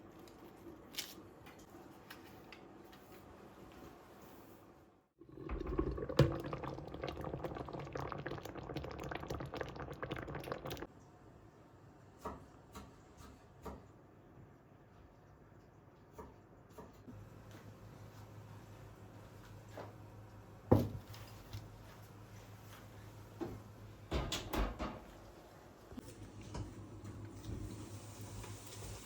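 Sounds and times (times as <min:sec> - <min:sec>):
liquid pouring into container: 0:05.2 - 0:10.9.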